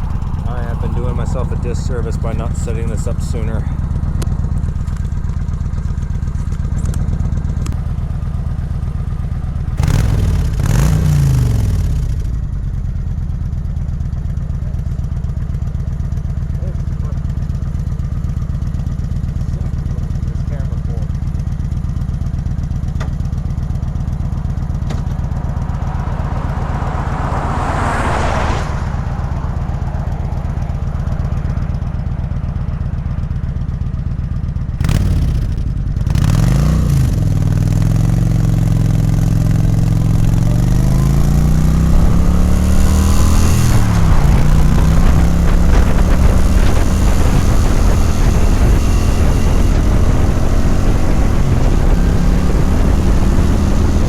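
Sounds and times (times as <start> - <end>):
motorcycle engine: 0.0 - 54.0
rushing sound: 23.8 - 32.3.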